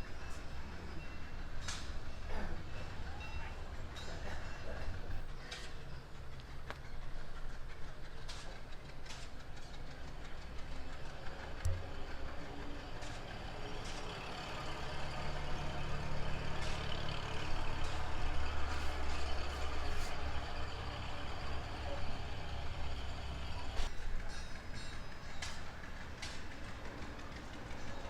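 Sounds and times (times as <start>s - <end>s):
engine running: 0.2s - 23.9s
sharp clanks: 23.8s - 28.0s.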